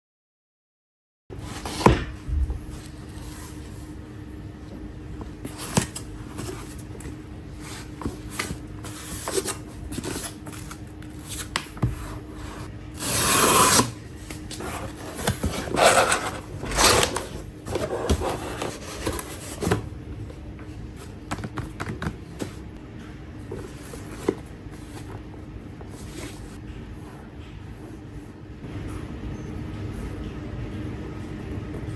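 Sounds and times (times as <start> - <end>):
cardboard sliding scrape: 1.4 - 3.9, 5.4 - 19.9, 25.8 - 26.6
cardboard and paper rustling: 1.4 - 4.0, 4.7 - 27.1.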